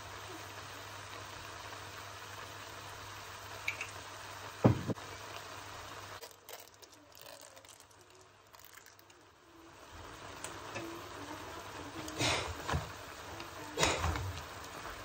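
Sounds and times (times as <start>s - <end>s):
steady hiss: 0.0s - 15.0s
squeeze bottle sputtering squirts: 6.2s - 9.0s.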